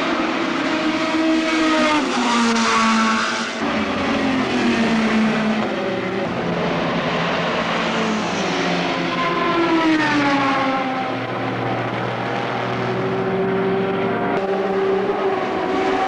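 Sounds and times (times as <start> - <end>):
race car engines at speed: 0.0 - 16.0.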